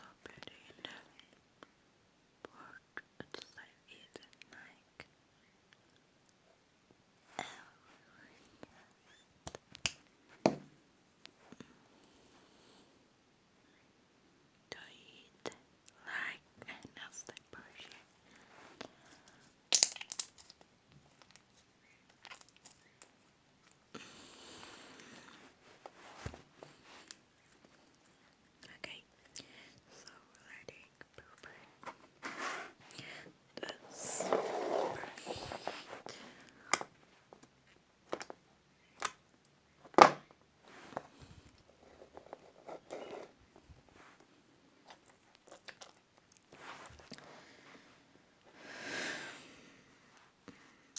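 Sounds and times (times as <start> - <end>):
soft steady hiss: 0.0 - 50.9
slime crunchy pops: 19.7 - 20.5
slime sticky crackling: 19.7 - 20.6.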